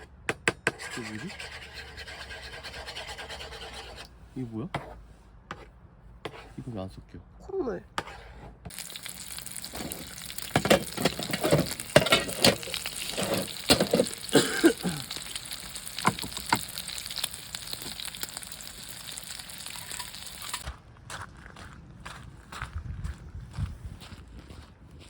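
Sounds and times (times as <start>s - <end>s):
food sizzling in a pan: 8.7s - 20.6s
utensil scraping and knocking pan: 9.8s - 14.4s, 16.0s - 16.7s.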